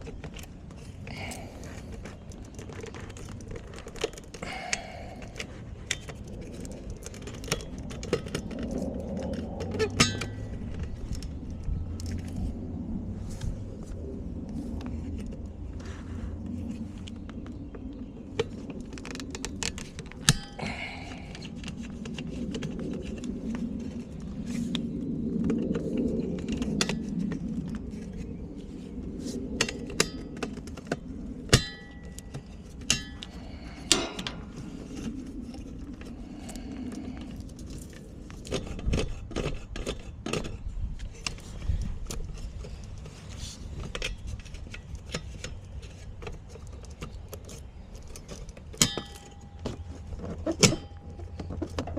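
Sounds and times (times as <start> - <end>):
low steady rumble: 0.0 - 51.9
metal tools clinking and tapping: 9.6 - 10.9, 31.5 - 34.6, 46.5 - 51.9.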